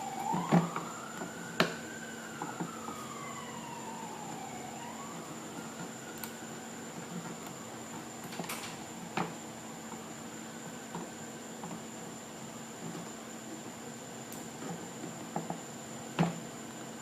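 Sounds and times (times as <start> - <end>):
siren wailing: 0.0 - 11.0.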